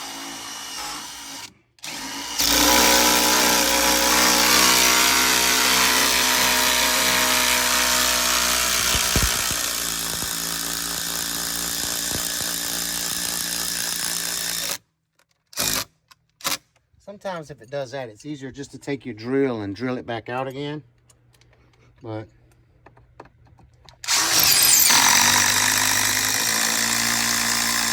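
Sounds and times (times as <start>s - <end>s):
cordless drill motor whine: 0.0s - 14.8s, 24.0s - 27.9s.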